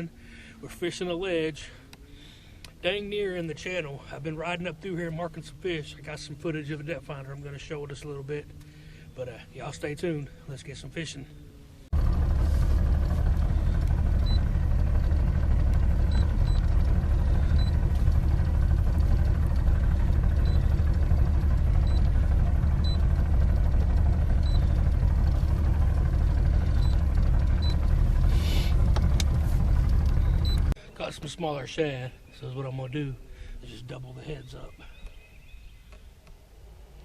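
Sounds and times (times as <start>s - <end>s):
boat motor rumbling: 11.5s - 30.8s.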